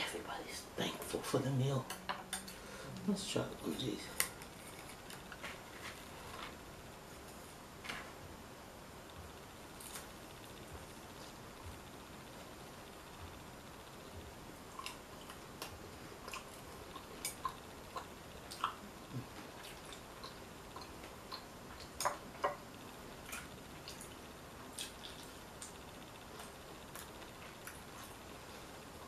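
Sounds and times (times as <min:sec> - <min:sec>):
crunchy chewing: 0:04.2 - 0:06.6, 0:09.7 - 0:11.3, 0:14.6 - 0:29.0.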